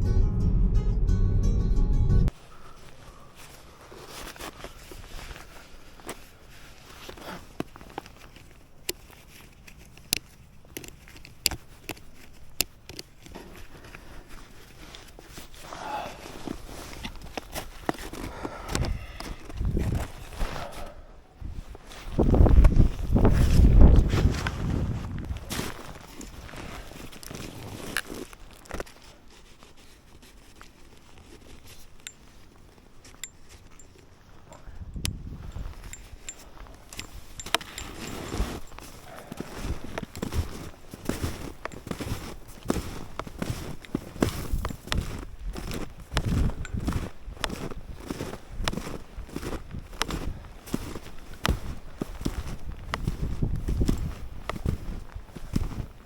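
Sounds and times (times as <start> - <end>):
snowshoe footsteps in snow: 2.8 - 34.4, 35.2 - 56.0
rustling with small clicks: 2.9 - 15.6, 25.7 - 56.0.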